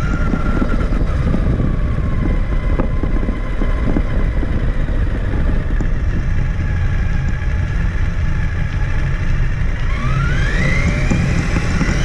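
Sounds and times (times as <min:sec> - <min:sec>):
electric motor whine: 0:09.8 - 0:12.0.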